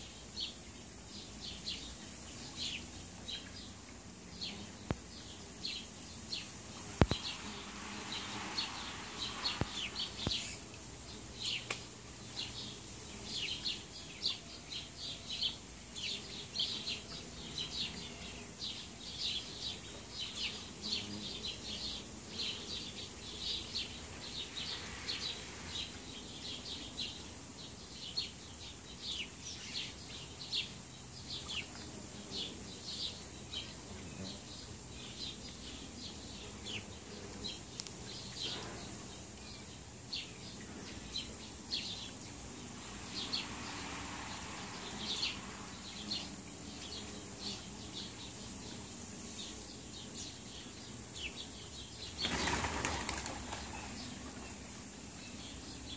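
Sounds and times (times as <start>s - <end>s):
small bird chirping: 8.2s - 43.8s.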